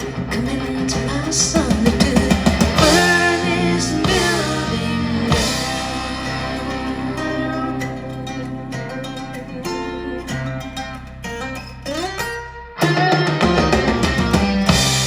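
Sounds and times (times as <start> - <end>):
drums: 0.0 - 8.6, 12.0 - 15.0
person singing: 0.0 - 11.8
bass: 0.0 - 15.0
guitar: 0.0 - 15.0
song over speakers: 0.0 - 15.0.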